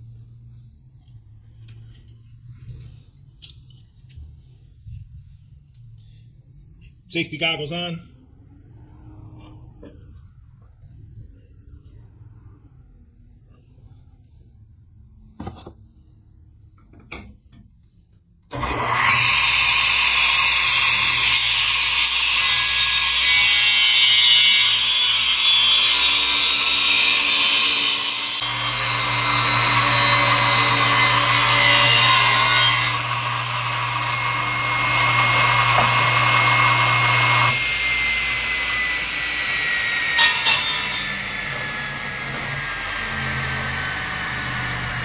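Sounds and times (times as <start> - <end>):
electric saw cutting wood: 18.5 - 45.0
saw motor winding down: 18.5 - 45.0.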